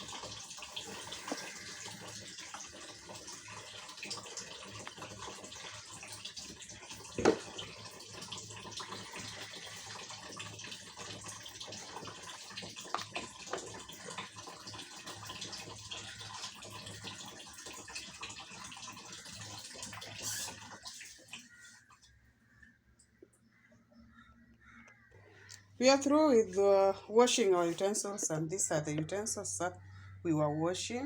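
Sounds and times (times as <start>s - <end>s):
water running from tap: 0.0s - 21.8s.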